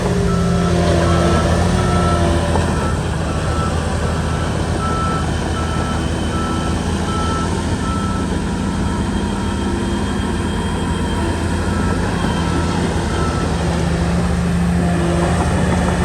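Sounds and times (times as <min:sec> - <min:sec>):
reversing alarm beeps: 0:00.0 - 0:15.5
bulldozer diesel engine: 0:00.0 - 0:16.0.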